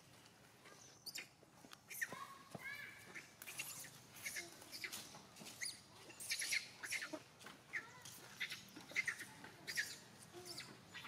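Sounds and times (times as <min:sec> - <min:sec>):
forest birds chirping: 0:00.0 - 0:11.0.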